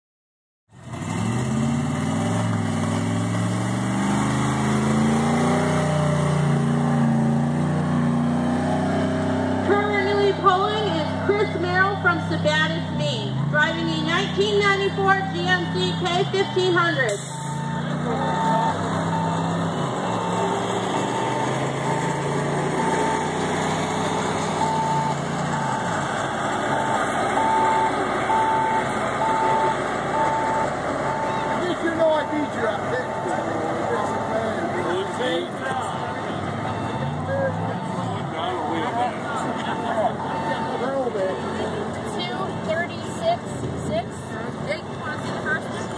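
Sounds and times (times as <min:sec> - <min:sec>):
truck engine under heavy load: 0:00.7 - 0:45.9
backup alarm beeping: 0:13.6 - 0:20.5, 0:21.1 - 0:23.4, 0:24.6 - 0:25.9, 0:26.7 - 0:33.4, 0:35.9 - 0:38.2, 0:39.4 - 0:41.6.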